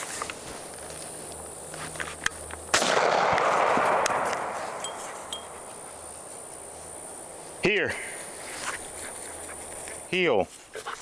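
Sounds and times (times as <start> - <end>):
gunshot with rolling echo: 2.7 - 5.8.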